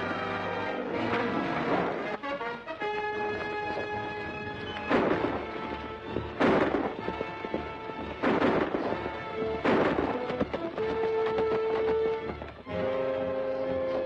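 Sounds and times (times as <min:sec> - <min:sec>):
dramatic orchestral music: 0:00.0 - 0:14.0
sharp loud bangs: 0:04.8 - 0:10.9.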